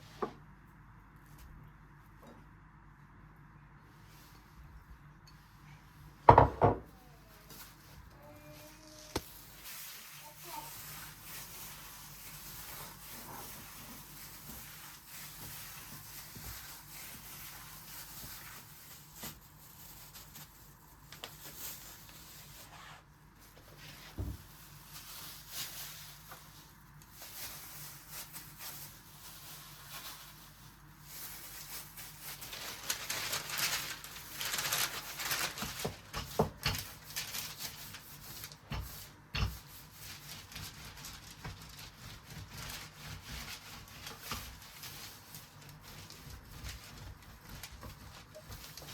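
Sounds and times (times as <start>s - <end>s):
rubbing and rustling handling sounds: 3.7s - 48.9s.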